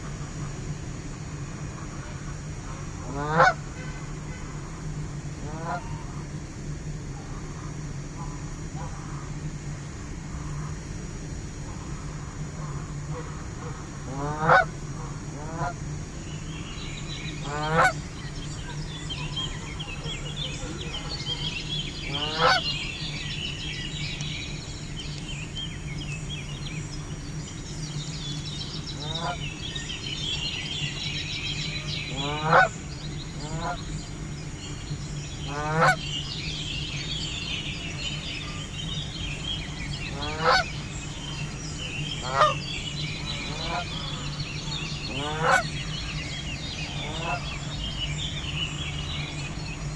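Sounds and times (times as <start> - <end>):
faint high chirping: 16.6 - 49.9
geese honking: 16.8 - 48.4.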